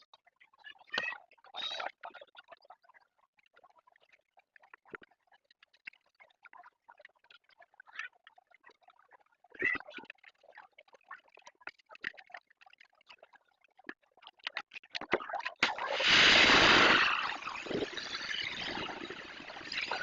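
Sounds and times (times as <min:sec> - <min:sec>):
water jet spraying: 0:15.6 - 0:20.0.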